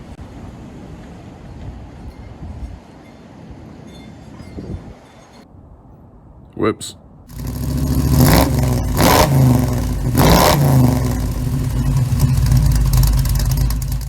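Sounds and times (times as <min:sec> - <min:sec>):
engine revving: 0:07.3 - 0:14.0.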